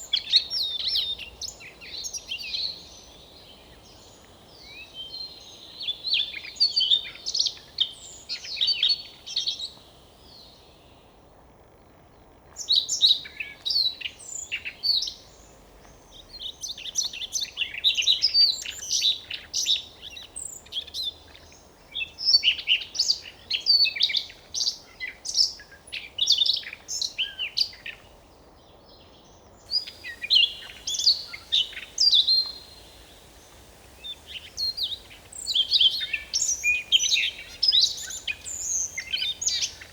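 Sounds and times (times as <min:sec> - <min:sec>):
bird singing high chirps and whistles: 0:29.6 - 0:39.9.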